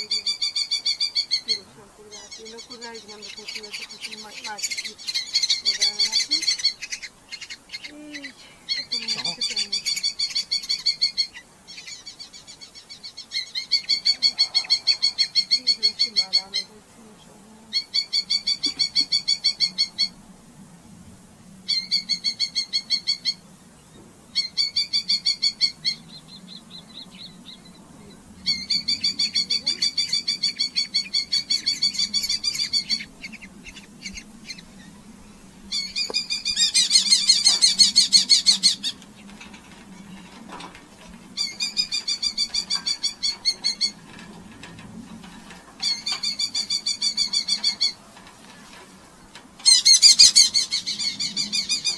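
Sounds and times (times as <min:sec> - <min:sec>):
falcon chattering calls: 0:00.0 - 0:16.7, 0:17.7 - 0:20.2, 0:28.4 - 0:34.8, 0:35.7 - 0:44.6, 0:45.4 - 0:48.2, 0:49.6 - 0:51.9.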